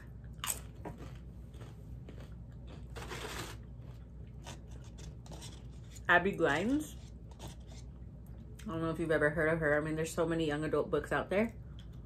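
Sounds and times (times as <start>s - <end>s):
chewing a crunchy chip: 0.2s - 6.0s.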